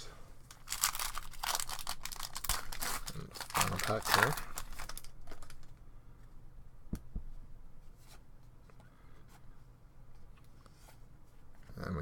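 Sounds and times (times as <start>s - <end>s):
trading cards rustling: 0.5s - 5.7s.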